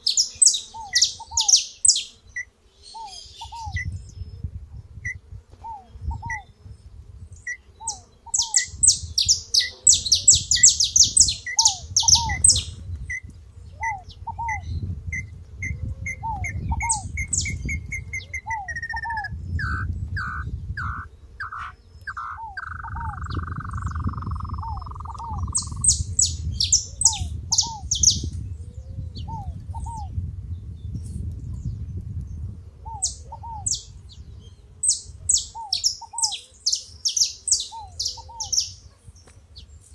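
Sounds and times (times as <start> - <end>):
short slurred bird calls: 0.0 - 3.9, 7.4 - 12.8, 15.6 - 26.0, 34.9 - 38.8.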